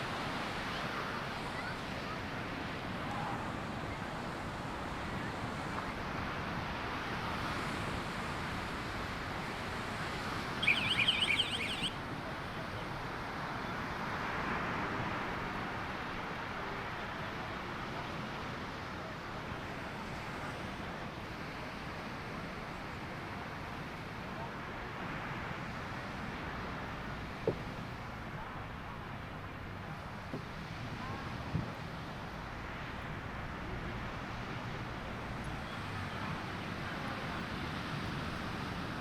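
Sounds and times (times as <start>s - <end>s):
wind: 0.0s - 39.0s
high warbling chirp: 10.6s - 12.0s.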